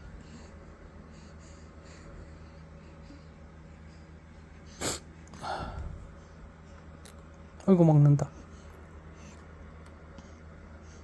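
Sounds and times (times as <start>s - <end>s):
baby snorting: 4.7s - 5.1s.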